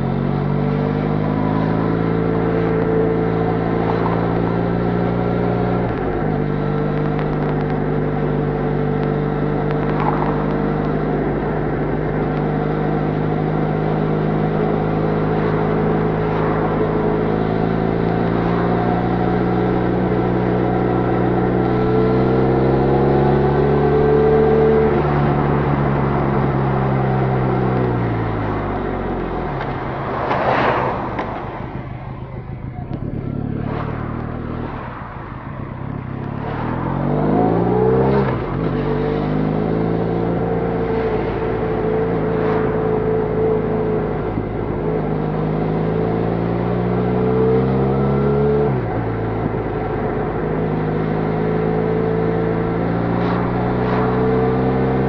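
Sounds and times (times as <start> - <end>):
motorcycle engine running: 0.0 - 30.0, 31.1 - 36.7.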